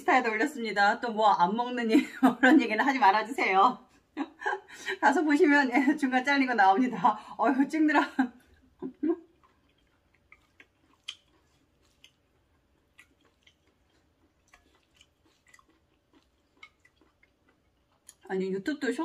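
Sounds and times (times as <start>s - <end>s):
chewing noodles: 8.4s - 18.3s.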